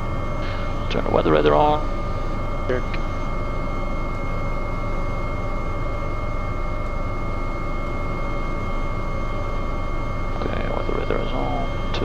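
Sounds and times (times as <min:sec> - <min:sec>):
helicopter cockpit rumble: 0:00.0 - 0:12.0
high-pitched turbine whine: 0:00.0 - 0:12.0.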